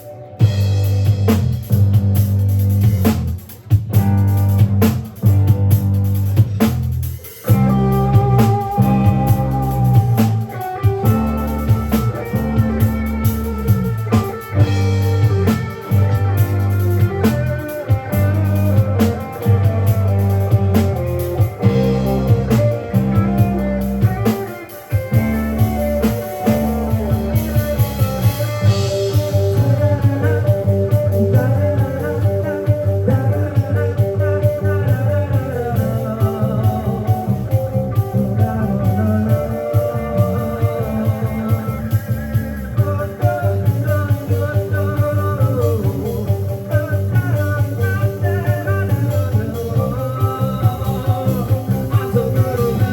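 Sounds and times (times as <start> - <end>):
bass guitar: 0.0 - 52.9
drum kit: 0.0 - 52.9
electric guitar: 0.0 - 52.9.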